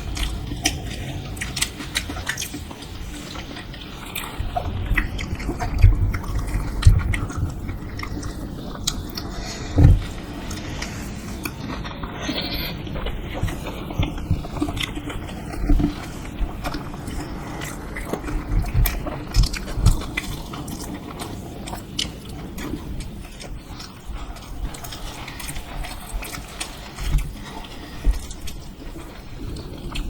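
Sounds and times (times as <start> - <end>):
person biting and chewing: 0.0 - 22.8
low thumps: 9.7 - 10.4.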